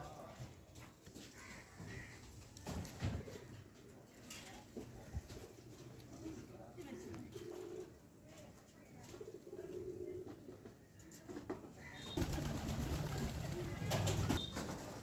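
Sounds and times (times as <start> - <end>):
pigeons cooing: 12.0 - 14.4.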